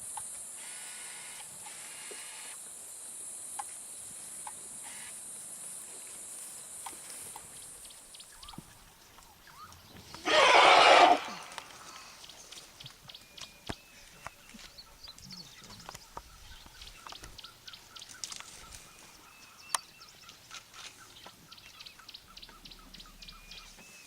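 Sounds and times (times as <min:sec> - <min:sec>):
loud noisy animal call: 0:10.2 - 0:12.1.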